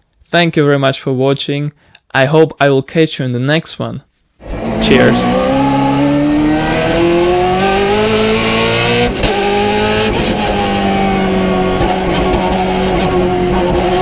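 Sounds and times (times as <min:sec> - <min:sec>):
race car engine under power: 0:04.4 - 0:14.0.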